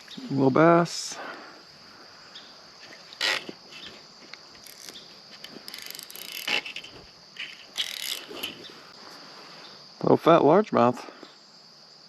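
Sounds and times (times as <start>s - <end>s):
high insect chirring: 0.0s - 12.0s
fishing tackle clicks and scrapes: 2.8s - 8.7s.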